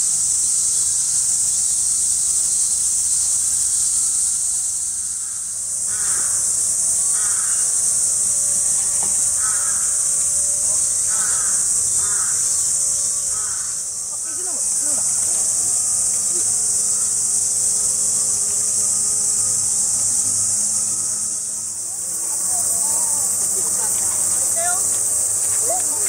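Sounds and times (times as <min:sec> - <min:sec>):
high-pitched insect chorus: 0:00.0 - 0:26.0
short calls: 0:20.9 - 0:26.0.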